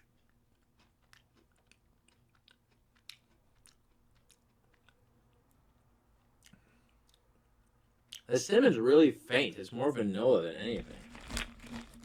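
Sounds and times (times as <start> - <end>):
crunchy cookie chewing: 0.0 - 8.3, 10.6 - 12.0.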